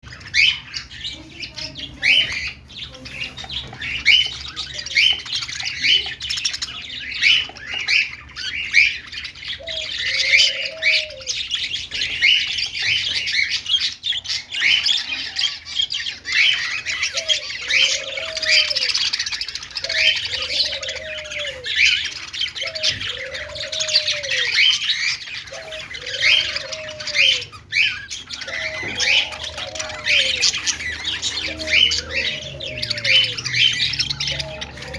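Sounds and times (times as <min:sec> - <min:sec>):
budgerigars chattering and chirping: 0:00.0 - 0:34.9
low rising and falling bird call: 0:06.7 - 0:13.5, 0:14.4 - 0:34.9.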